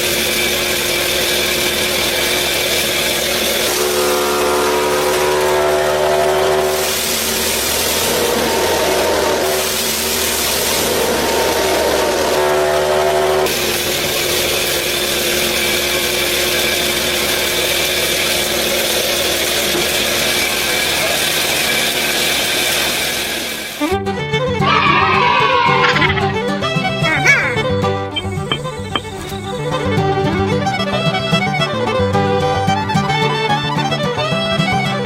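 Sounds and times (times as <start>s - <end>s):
small motor running: 0.0s - 22.8s.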